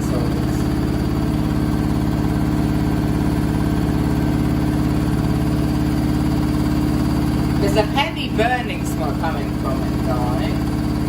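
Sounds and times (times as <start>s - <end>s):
washing machine spinning: 0.0s - 11.0s.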